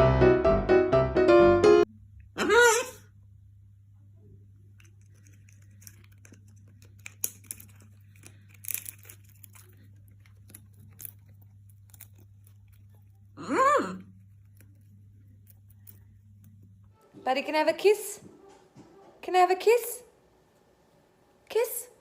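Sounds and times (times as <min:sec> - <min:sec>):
steady low hum: 0:03.0 - 0:17.2
parrot chewing and tearing: 0:04.4 - 0:16.9.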